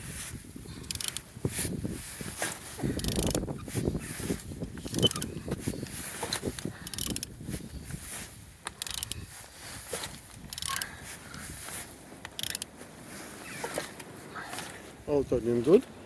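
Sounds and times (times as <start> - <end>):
ratchet wrench clicking: 0.8 - 1.2, 3.0 - 3.4, 4.8 - 5.3, 6.8 - 7.3, 8.6 - 9.2, 10.5 - 10.9, 12.2 - 12.7.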